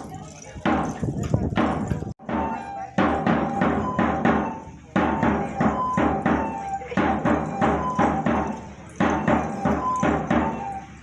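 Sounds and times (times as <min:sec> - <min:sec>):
drum strikes: 0:01.6 - 0:11.0
held tones: 0:02.2 - 0:11.0.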